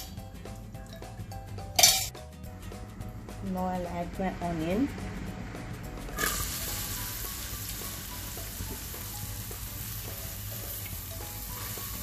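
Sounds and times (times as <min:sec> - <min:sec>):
onion sizzling in hot oil: 0:06.2 - 0:12.0.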